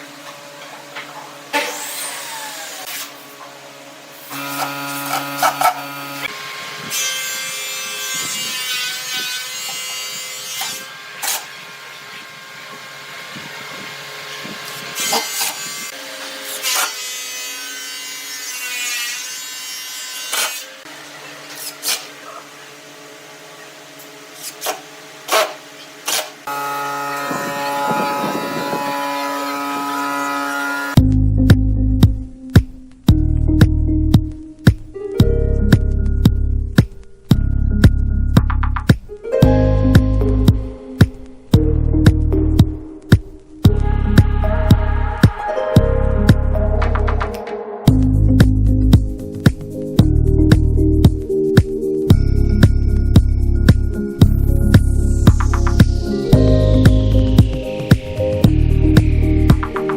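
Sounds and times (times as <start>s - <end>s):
power tool motors whining: 0.0s - 18.9s, 20.3s - 31.0s.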